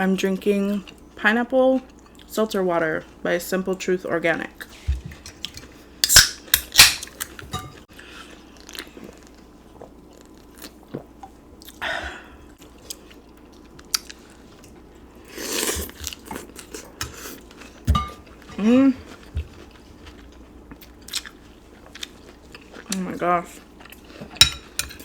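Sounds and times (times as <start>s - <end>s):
person chewing food: 8.0s - 11.8s, 12.6s - 25.0s.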